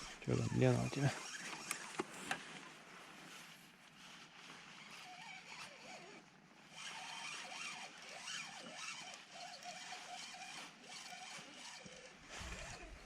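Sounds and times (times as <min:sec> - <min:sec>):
fishing reel whirring: 0:00.0 - 0:02.0, 0:04.7 - 0:13.0.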